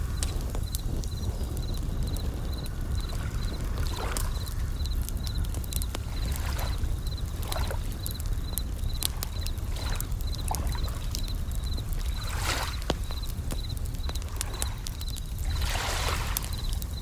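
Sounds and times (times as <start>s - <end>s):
campfire crackling and popping: 0.0s - 17.0s
crickets chirping in high trills: 0.0s - 17.0s
waves washing in: 15.4s - 16.5s.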